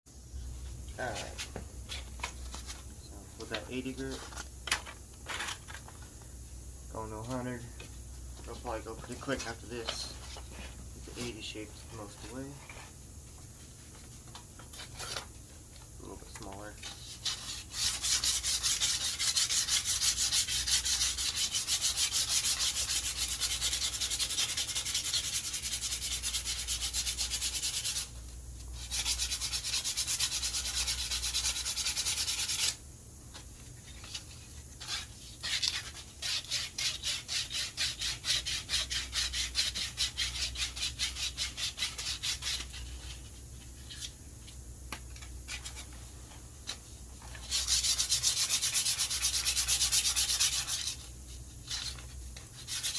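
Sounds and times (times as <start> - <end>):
sandpaper rubbing on wood: 16.8 - 28.1, 28.8 - 32.8, 34.8 - 43.2, 47.4 - 51.1, 51.7 - 52.9.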